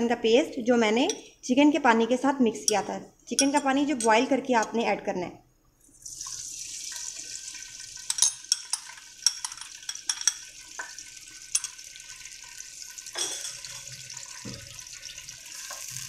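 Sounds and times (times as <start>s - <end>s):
metal spoon clinking on glass: 2.7s - 4.8s, 8.1s - 10.5s, 11.6s - 11.8s, 13.2s - 13.8s
paste sizzling in hot oil: 10.4s - 16.0s.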